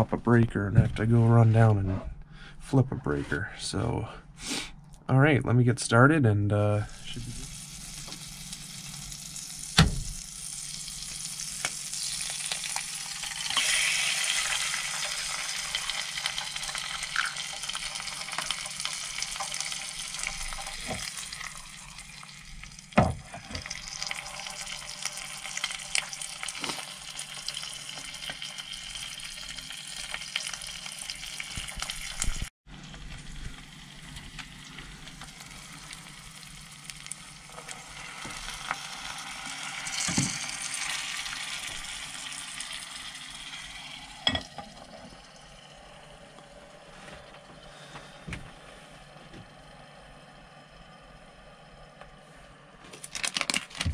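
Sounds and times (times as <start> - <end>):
egg sizzling in a pan: 7.2 - 46.8.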